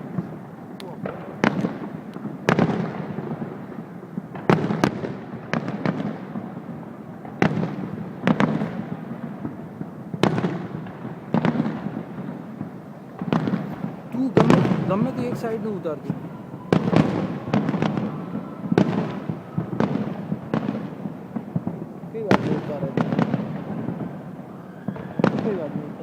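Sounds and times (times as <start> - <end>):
fireworks shells bursting: 7.4 - 21.9.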